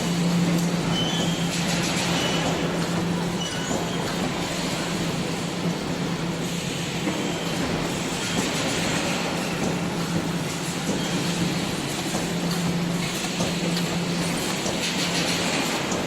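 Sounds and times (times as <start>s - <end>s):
production line machinery running: 0.0s - 16.0s.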